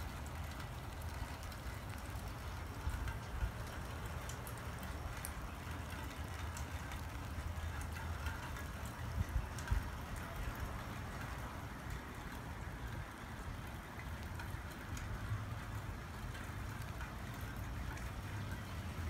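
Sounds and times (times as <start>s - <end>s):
light rain falling: 0.0s - 19.0s.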